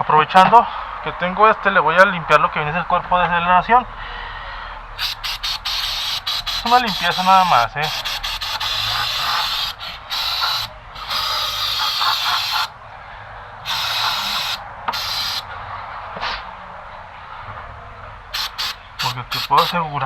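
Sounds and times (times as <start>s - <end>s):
aerosol spray hissing: 5.0s - 12.7s, 13.7s - 15.4s, 18.4s - 19.8s.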